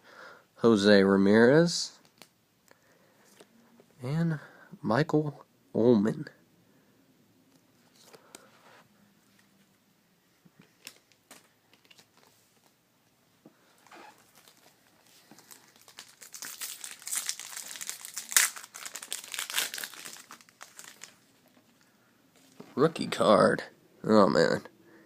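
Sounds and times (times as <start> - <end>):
foil wrapper crinkling: 13.9 - 21.5
foil wrapper tearing: 15.4 - 21.2.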